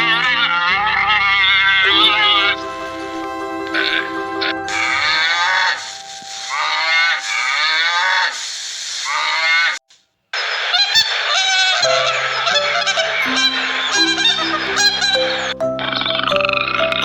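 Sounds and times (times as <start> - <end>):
steady tones: 0.0 - 8.5
animal honking cries: 10.6 - 15.5.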